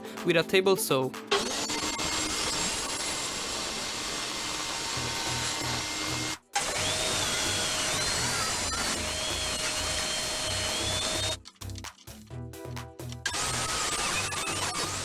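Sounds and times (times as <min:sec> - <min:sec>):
background music with steady beat: 0:00.0 - 0:15.0
power tool cutting wood: 0:01.3 - 0:11.5, 0:13.2 - 0:15.0.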